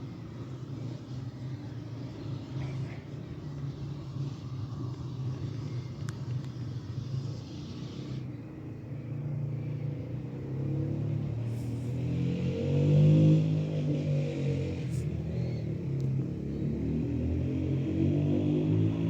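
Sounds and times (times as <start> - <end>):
vehicle engine revving: 10.2 - 19.0.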